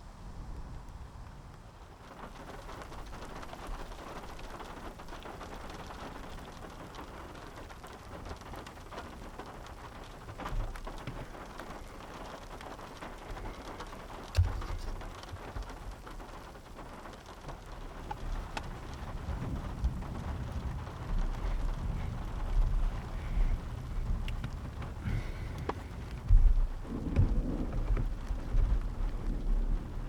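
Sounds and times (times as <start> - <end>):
rain pattering: 0.0 - 30.0
short low thump: 26.3 - 28.8.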